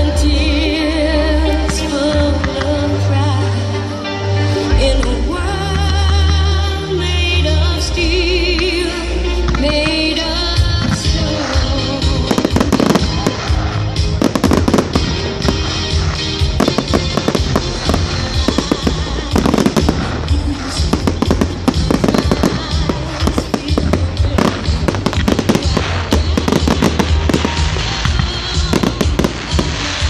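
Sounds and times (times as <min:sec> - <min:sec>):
music playing: 0:00.0 - 0:30.0
fireworks bangs and crackles: 0:09.5 - 0:30.0.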